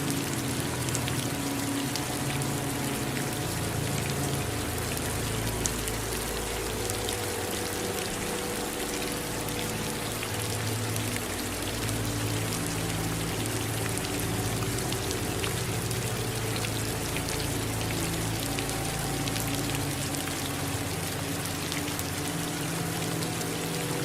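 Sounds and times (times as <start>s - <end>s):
raindrops ticking: 0.0s - 24.0s
steady rain: 0.0s - 24.0s.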